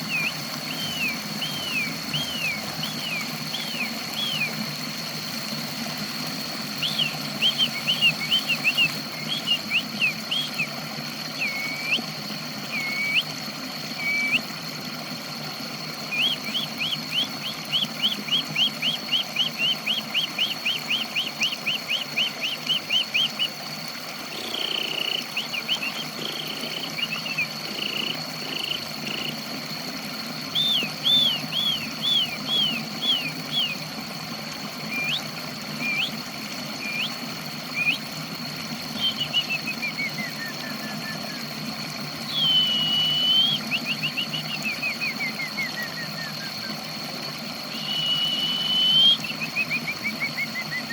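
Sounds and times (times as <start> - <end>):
high whine: 16.1 - 33.9.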